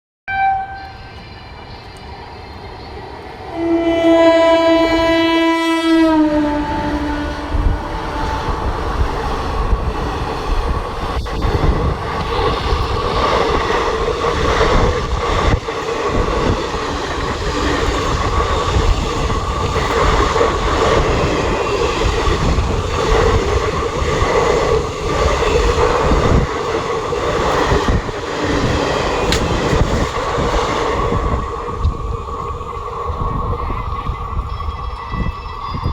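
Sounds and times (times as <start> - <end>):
train horn blast: 0.3 - 1.2, 3.4 - 8.9.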